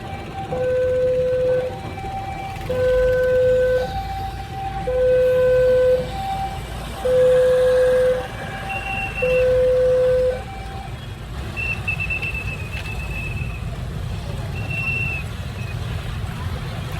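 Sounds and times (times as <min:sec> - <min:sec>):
road traffic rumble: 0:00.0 - 0:16.9
two-tone warning signal: 0:00.1 - 0:10.8.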